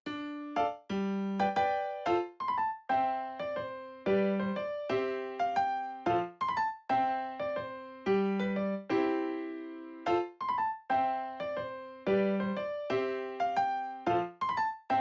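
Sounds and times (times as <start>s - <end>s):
light piano tune: 0.0s - 15.0s.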